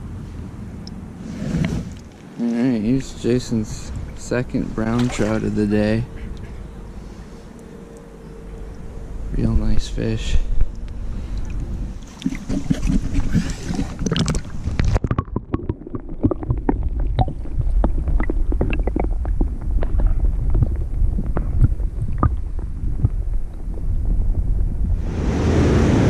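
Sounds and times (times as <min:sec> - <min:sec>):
wind buffeting microphone: 0:08.7 - 0:26.0
water splashing: 0:10.7 - 0:23.3.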